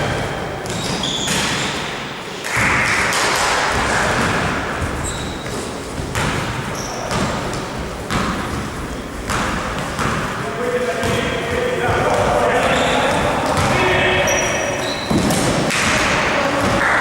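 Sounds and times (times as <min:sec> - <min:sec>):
hall noise from people: 0:00.0 - 0:17.0
sneaker squeaks: 0:00.0 - 0:17.0
basketball bouncing on court: 0:03.6 - 0:17.0.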